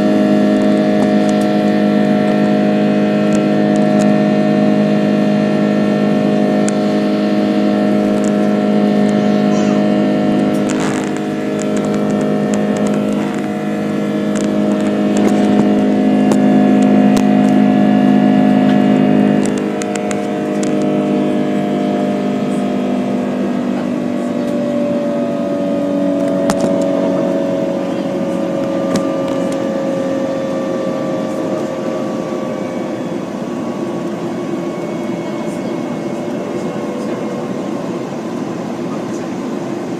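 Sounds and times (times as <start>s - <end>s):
jet engines droning in cabin: 0.0s - 39.9s.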